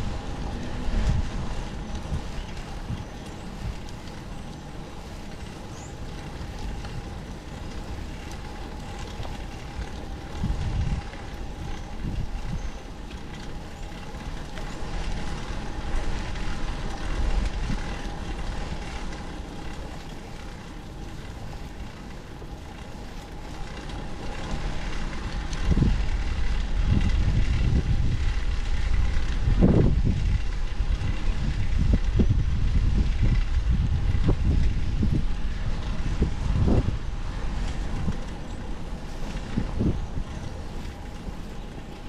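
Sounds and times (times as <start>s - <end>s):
road noise: 0.0s - 42.0s
wind buffeting microphone: 0.0s - 42.0s.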